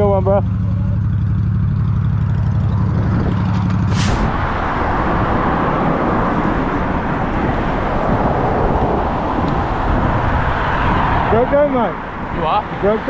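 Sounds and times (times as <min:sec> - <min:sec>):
motorcycle engine: 0:00.0 - 0:10.5
wind rushing: 0:03.0 - 0:11.5
brief hiss: 0:03.9 - 0:04.4.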